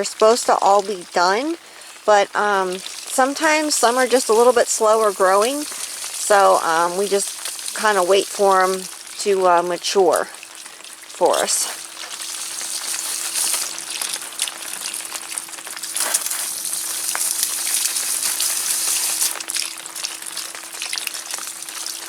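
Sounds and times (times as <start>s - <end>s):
rain pattering on an umbrella: 0.0s - 22.0s.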